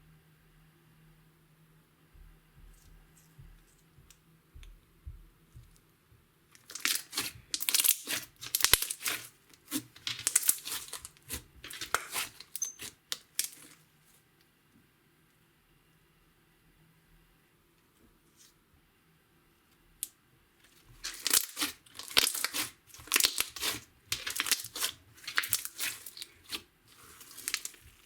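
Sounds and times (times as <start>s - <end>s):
slime crackling and popping: 6.6s - 13.8s, 20.9s - 28.0s.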